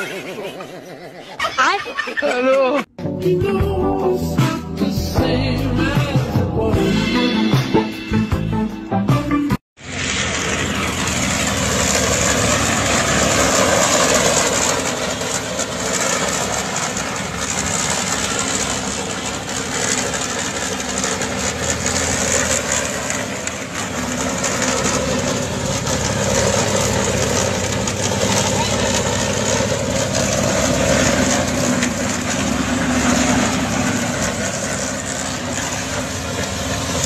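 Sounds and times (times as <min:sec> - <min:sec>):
car engine running: 0:09.8 - 0:37.0.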